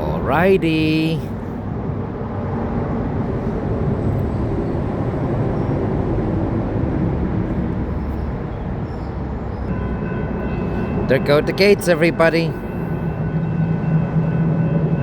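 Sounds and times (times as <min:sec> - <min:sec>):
freight train wheels rumbling on rail: 0:00.0 - 0:15.0.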